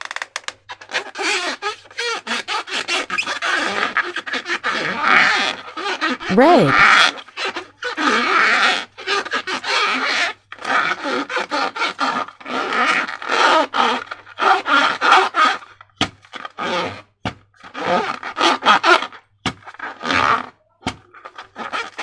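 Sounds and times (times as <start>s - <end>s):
rubber balloon squeaks: 0.0s - 22.0s.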